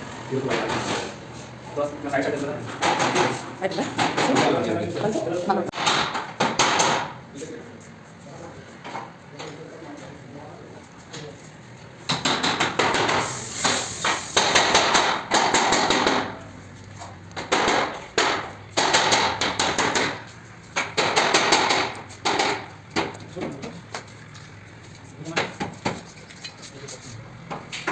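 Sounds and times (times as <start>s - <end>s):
hammering blows: 5.7s - 7.2s, 12.0s - 16.5s, 17.4s - 23.4s.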